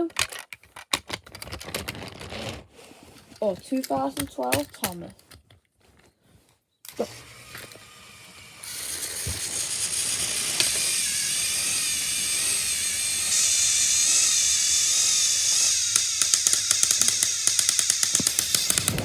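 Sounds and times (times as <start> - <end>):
toy train motors whirring: 3.0 - 5.4, 6.9 - 19.0
rapid clicking: 15.4 - 19.0.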